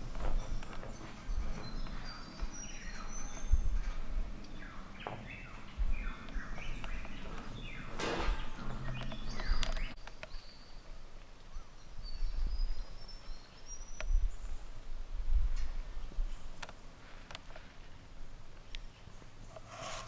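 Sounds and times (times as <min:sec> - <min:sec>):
birds chirping: 0:00.0 - 0:14.7.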